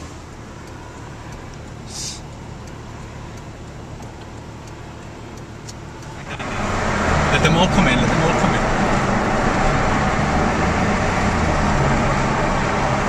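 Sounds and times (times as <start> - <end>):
traffic and road noise: 0.0 - 13.0
brief hiss: 1.8 - 2.3.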